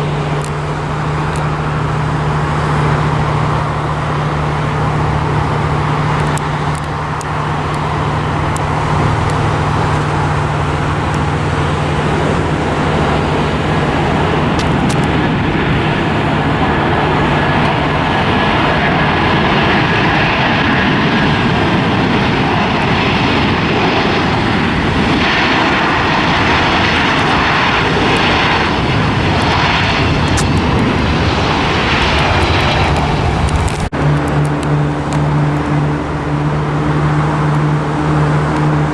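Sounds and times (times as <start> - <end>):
airliner engines roaring: 0.0 - 38.9.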